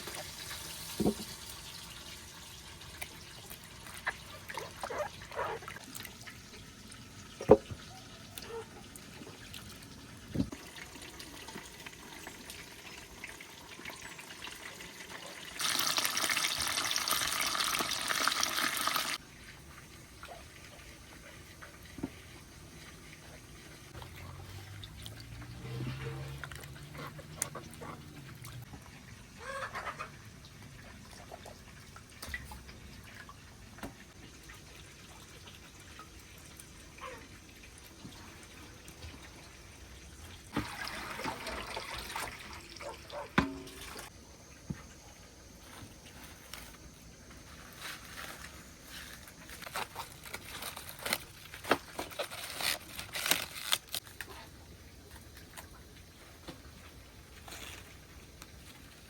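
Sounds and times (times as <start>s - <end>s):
water running from a tap: 0.0s - 20.0s, 30.4s - 44.1s.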